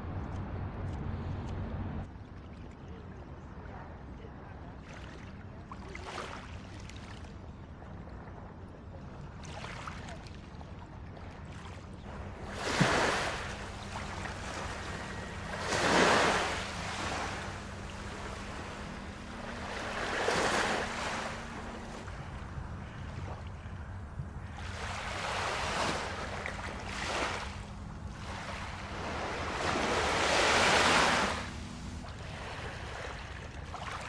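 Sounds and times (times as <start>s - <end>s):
steady low hum: 11.3s - 34.0s
waves washing up on sand: 12.0s - 23.0s, 24.6s - 34.0s.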